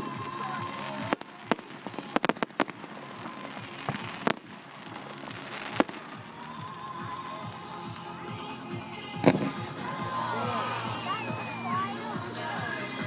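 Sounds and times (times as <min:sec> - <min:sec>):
fireworks bangs: 0:00.0 - 0:10.2
fireworks crackling: 0:00.0 - 0:13.0.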